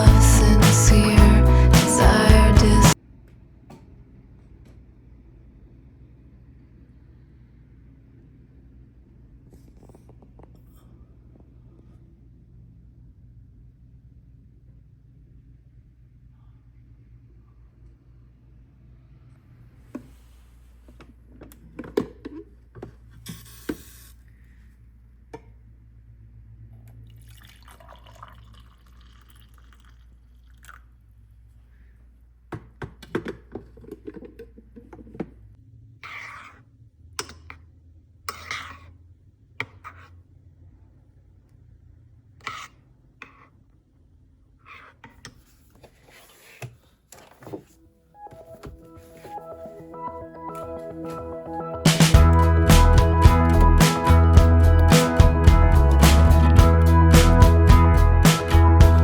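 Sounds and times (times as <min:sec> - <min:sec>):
low steady hum: 0:00.0 - 0:03.0.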